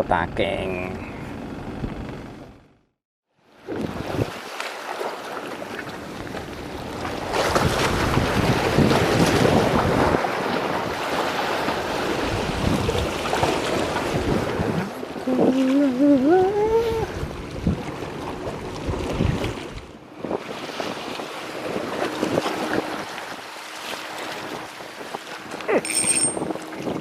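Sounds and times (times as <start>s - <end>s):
sea surf: 3.5s - 25.8s
strong wind on microphone: 7.4s - 11.0s, 12.2s - 15.6s, 16.4s - 18.0s, 18.8s - 23.1s.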